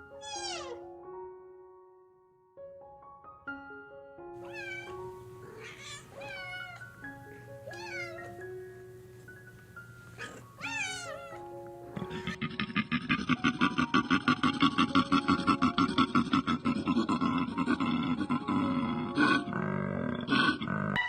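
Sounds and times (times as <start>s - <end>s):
cat meowing: 0.1s - 0.8s, 4.4s - 8.5s, 10.2s - 12.4s
plucked background music: 4.4s - 19.6s.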